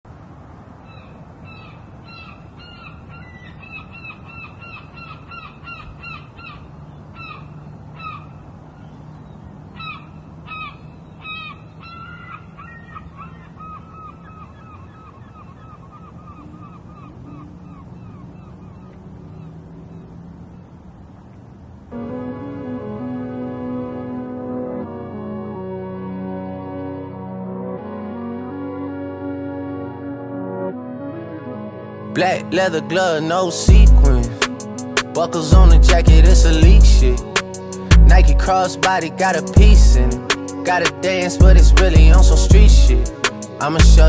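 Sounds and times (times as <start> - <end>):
flock of birds calling: 0.8 - 20.2
steady low hum: 33.7 - 34.8, 35.6 - 38.5, 39.6 - 40.3, 41.4 - 43.2.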